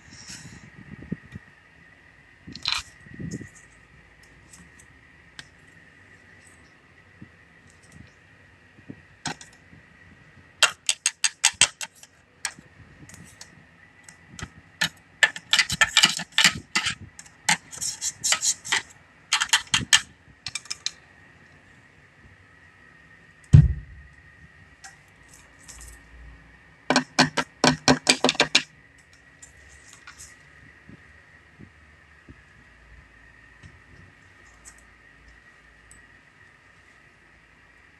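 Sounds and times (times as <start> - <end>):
low thump: 23.5 - 24.1.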